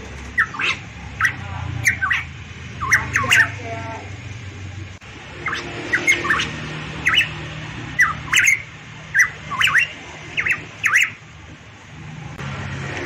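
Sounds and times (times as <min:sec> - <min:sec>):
bird calling with swooping notes: 0:00.2 - 0:03.7, 0:05.2 - 0:11.3.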